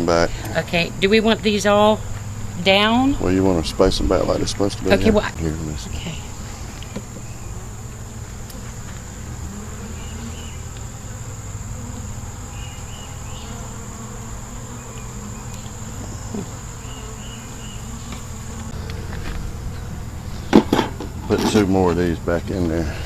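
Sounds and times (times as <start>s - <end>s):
bees humming: 0.0s - 23.0s
high-pitched insect drone: 0.1s - 21.4s.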